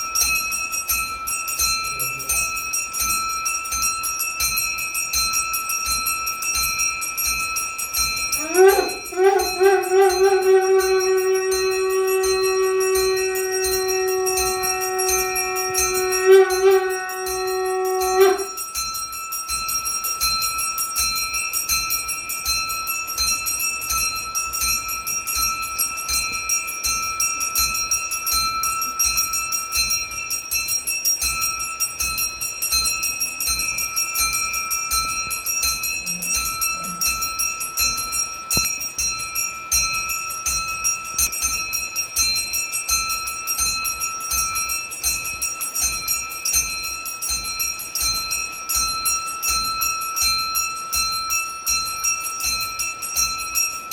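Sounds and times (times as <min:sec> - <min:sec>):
bells ringing rapidly: 0:00.0 - 0:53.9
conch shell blown: 0:08.4 - 0:18.7, 0:36.0 - 0:37.2.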